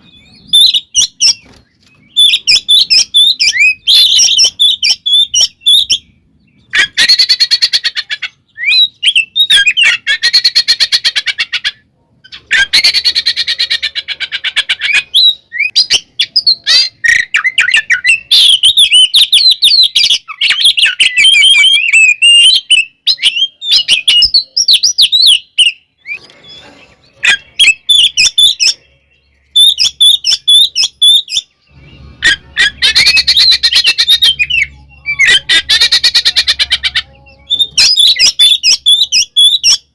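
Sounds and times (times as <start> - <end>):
bird warbled whistled song: 0.0 - 39.9
bird harsh chattering: 29.5 - 39.9.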